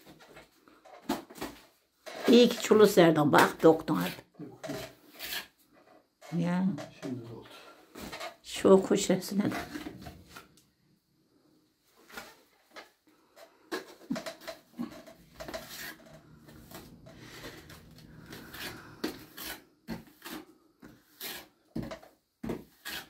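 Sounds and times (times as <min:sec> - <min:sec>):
scraping and rubbing: 0:02.1 - 0:07.2, 0:09.2 - 0:10.6, 0:11.9 - 0:23.0.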